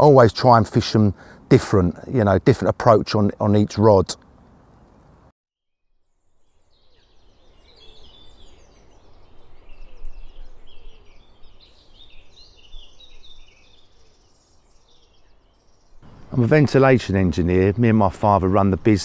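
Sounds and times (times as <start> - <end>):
small birds chirping: 0.9 - 5.3, 6.1 - 19.0.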